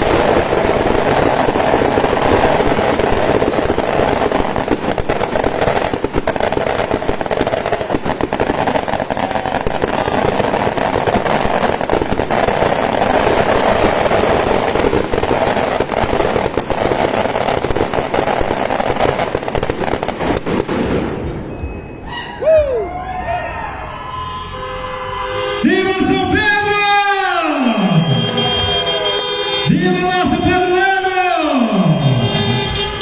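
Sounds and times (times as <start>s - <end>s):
firecrackers crackling: 0.0s - 33.0s
sliding whistle-like sound: 21.5s - 25.0s.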